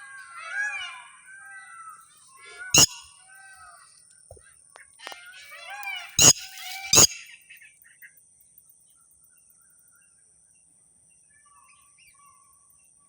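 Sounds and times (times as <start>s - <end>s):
bird chirps and whistled calls: 2.8s - 3.0s, 6.2s - 7.2s
steady high-pitched tone: 2.8s - 3.0s, 6.2s - 7.2s.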